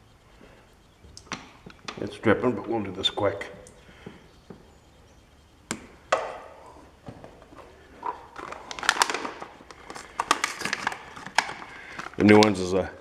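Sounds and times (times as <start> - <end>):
small knocks: 5.7 - 11.6
clicks and clatter of tools: 8.0 - 12.2.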